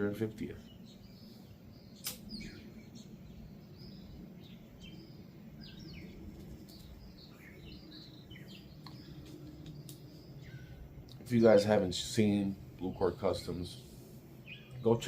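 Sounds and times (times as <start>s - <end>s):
low background hum: 0.0s - 15.0s
small birds chirping: 0.0s - 15.0s
sharp click: 2.0s - 2.4s.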